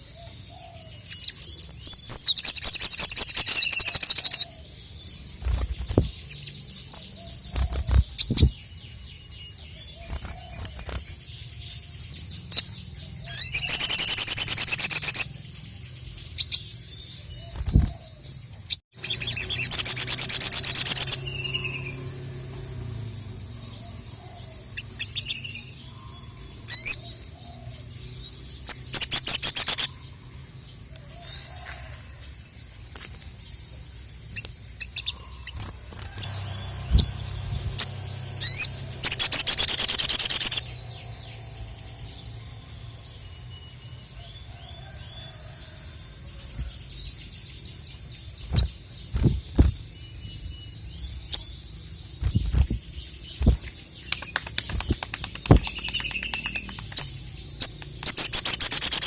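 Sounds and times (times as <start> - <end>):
bird singing rapid high notes: 34.2 - 43.8.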